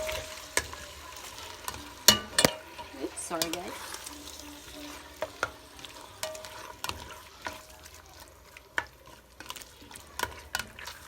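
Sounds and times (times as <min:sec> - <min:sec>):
utensil clinking against pot: 0:00.0 - 0:04.2, 0:05.2 - 0:07.8
chicken sizzling in oil: 0:00.0 - 0:11.0.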